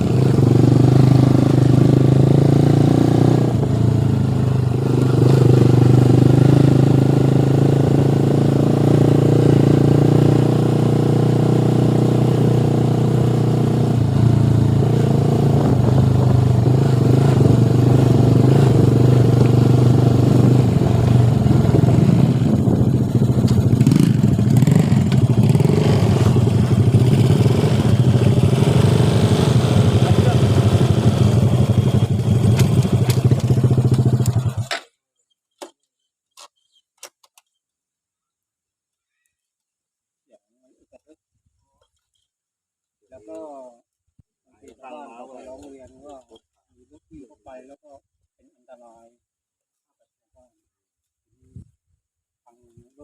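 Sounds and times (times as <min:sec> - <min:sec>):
motorcycle engine running: 0:00.0 - 0:34.7.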